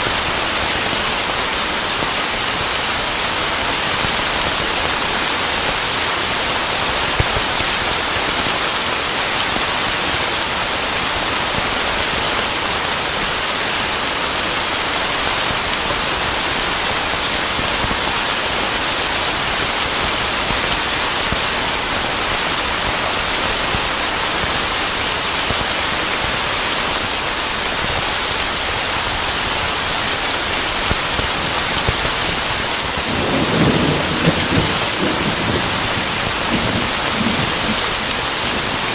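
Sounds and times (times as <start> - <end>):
heavy rain pattering: 0.0 - 38.9
low roll of thunder: 33.1 - 38.8.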